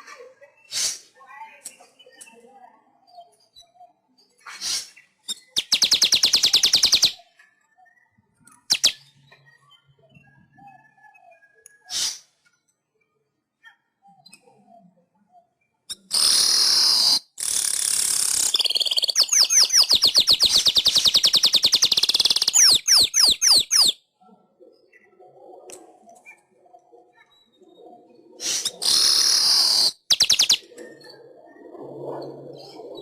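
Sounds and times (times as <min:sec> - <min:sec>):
bird wheezy hissing phrases: 0:00.6 - 0:01.2, 0:04.5 - 0:05.0, 0:11.9 - 0:12.3, 0:28.4 - 0:29.9
bird rattling trill: 0:04.6 - 0:07.2, 0:15.9 - 0:24.0, 0:28.4 - 0:30.7.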